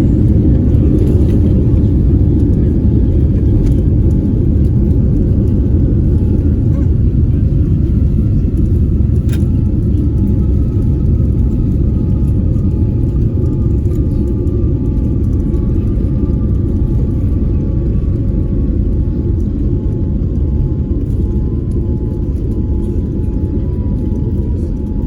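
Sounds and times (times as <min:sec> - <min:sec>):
airliner cabin rumble: 0:00.0 - 0:25.0
faint engine whine: 0:00.0 - 0:25.0.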